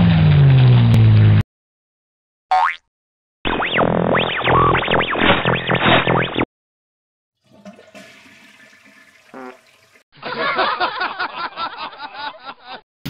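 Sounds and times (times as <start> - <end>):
toilet flushing: 7.4 - 10.0.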